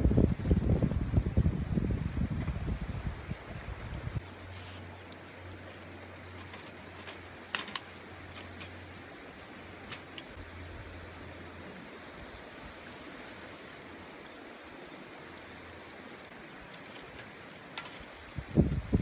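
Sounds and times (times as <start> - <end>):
wind rumble on microphone: 0.0 - 4.3, 17.9 - 19.0
rushing outdoor noise: 0.0 - 19.0
sharp crackles: 0.0 - 19.0.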